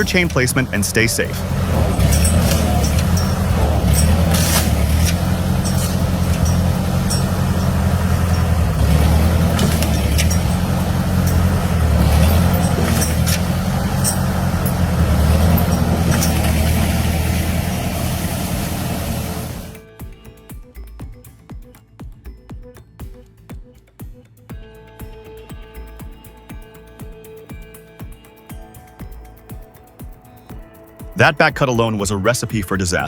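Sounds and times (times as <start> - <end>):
sharp clicks and knocks: 0.0 - 19.8
tractor engine running: 0.0 - 19.8.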